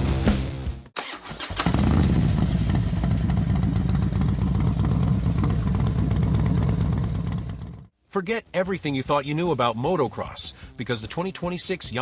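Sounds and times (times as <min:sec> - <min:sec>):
music: 0:00.0 - 0:01.0, 0:08.2 - 0:12.0
dirt bike engine running: 0:01.5 - 0:07.9.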